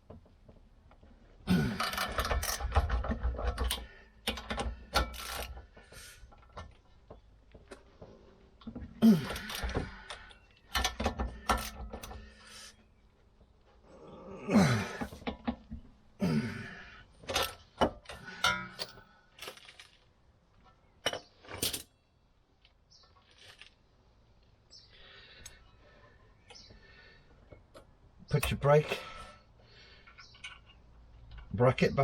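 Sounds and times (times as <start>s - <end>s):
metal tools clinking and clanking: 17.3s - 20.0s, 30.0s - 31.5s.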